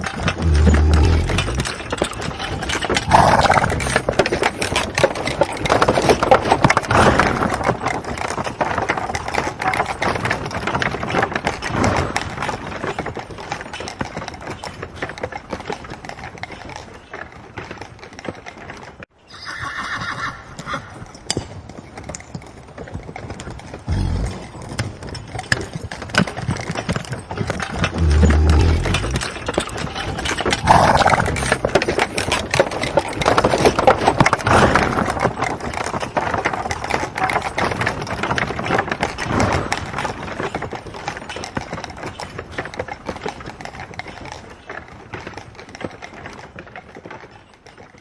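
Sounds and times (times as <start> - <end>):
horses whinnying: 0.0 - 8.0, 19.3 - 21.1, 23.8 - 24.7, 27.6 - 37.2
hooves clattering: 0.0 - 48.0.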